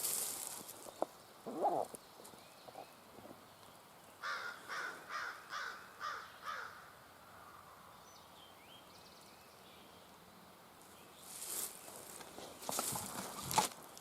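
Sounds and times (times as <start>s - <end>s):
faint songbird chirps: 0.1s - 12.2s
bird harsh calls: 0.8s - 3.0s, 4.2s - 7.9s.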